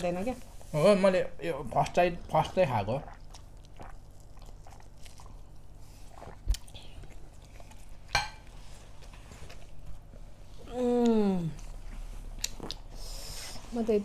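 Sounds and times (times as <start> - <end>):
chewing mouth noises: 3.0 - 8.1, 12.3 - 12.9.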